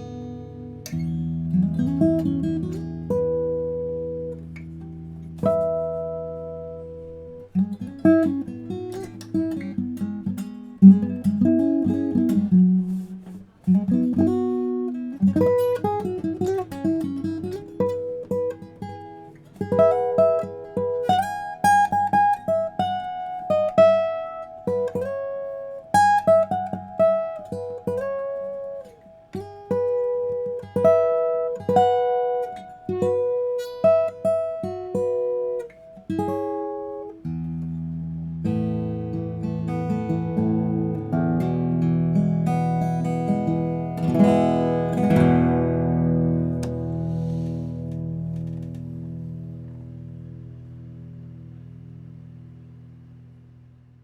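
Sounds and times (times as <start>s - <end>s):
acoustic guitar playing: 0.0s - 54.0s.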